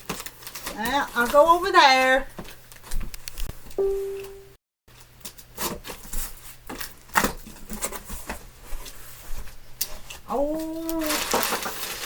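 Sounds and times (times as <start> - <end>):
cardboard and fabric rustling: 0.0 - 3.2, 5.6 - 12.0.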